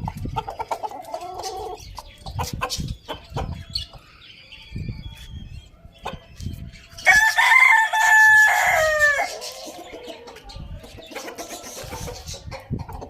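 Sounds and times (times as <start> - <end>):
chickens clucking softly: 0.0 - 7.3, 8.6 - 13.0
rooster crowing: 7.0 - 9.4.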